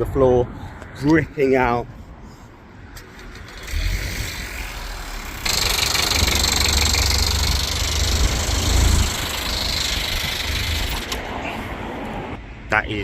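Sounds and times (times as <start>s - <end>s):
car engine knocking: 5.4s - 11.2s.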